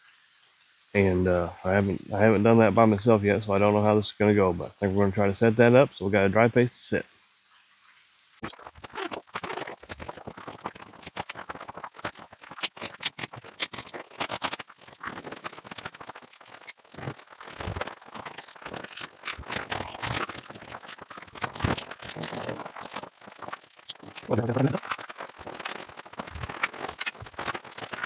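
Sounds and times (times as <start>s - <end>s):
fabric rustling and scraping: 8.6s - 28.0s.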